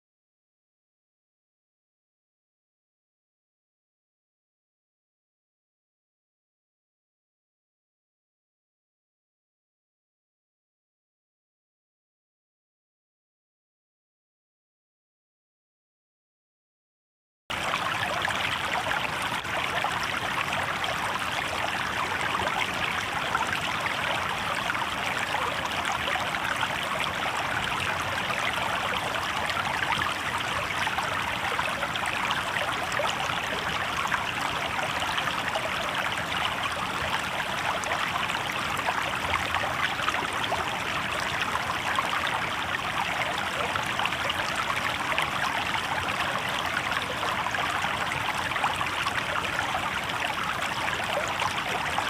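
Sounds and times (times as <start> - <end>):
river water babbling over stones: 17.5 - 52.0.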